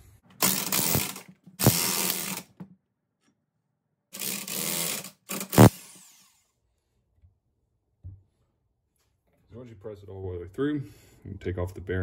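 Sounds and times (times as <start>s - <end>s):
power tool bursts: 0.4s - 2.5s, 4.2s - 6.4s.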